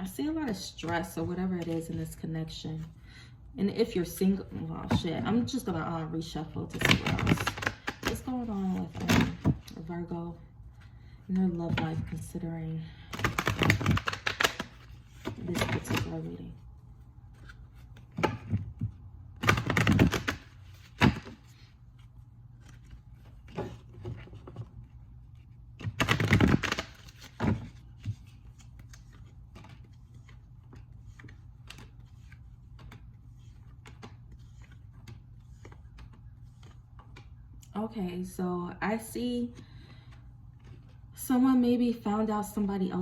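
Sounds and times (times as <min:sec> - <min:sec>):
cards being shuffled: 0:00.9 - 0:02.2, 0:06.7 - 0:09.9, 0:13.1 - 0:16.3, 0:17.3 - 0:37.6
cards clicking and tapping: 0:06.7 - 0:09.8, 0:13.1 - 0:16.2, 0:17.4 - 0:21.6, 0:25.8 - 0:37.6.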